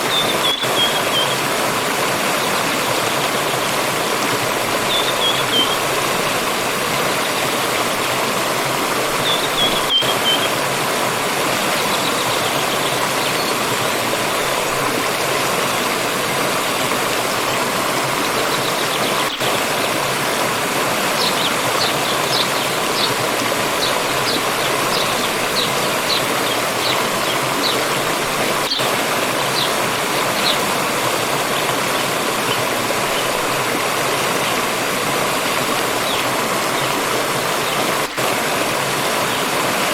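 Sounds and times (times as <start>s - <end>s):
birds calling: 0.0s - 8.1s, 9.0s - 10.6s, 11.5s - 14.8s, 18.1s - 20.1s, 20.8s - 31.8s
forest stream flowing: 0.0s - 39.9s.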